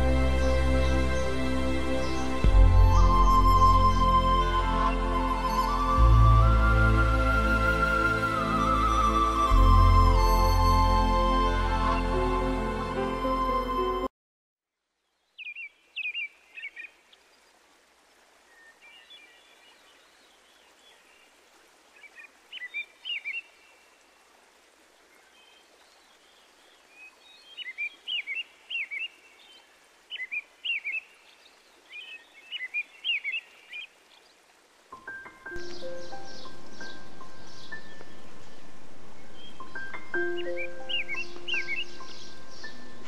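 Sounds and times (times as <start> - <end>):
faint steady hiss: 14.7 - 43.0.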